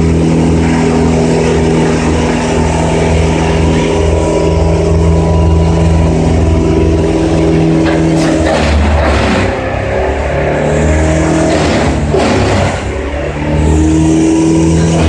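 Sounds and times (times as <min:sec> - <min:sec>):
engine running hard: 0:00.0 - 0:15.0.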